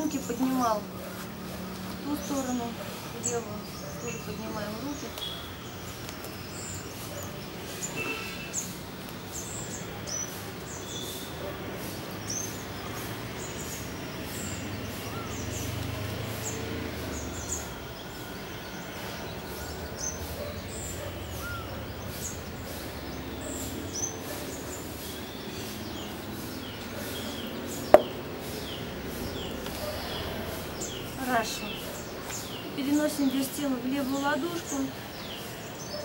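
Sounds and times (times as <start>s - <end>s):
birds chirping: 0.0s - 36.0s
outdoor background noise: 0.0s - 36.0s
sharp knock: 27.9s - 28.2s.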